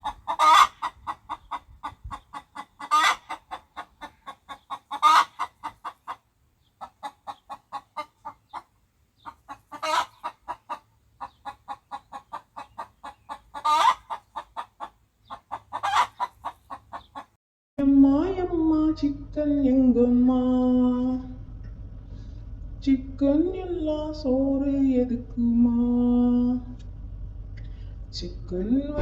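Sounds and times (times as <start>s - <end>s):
chicken squawks: 0.0s - 6.2s, 6.8s - 17.3s
chicken clucking: 0.0s - 17.4s.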